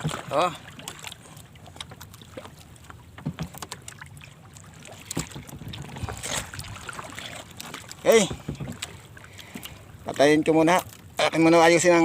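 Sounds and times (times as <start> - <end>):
low wind: 0.0 - 12.0
water noise: 0.0 - 12.0
knocks and taps on a boat: 3.0 - 3.9, 5.0 - 6.1, 8.0 - 9.6.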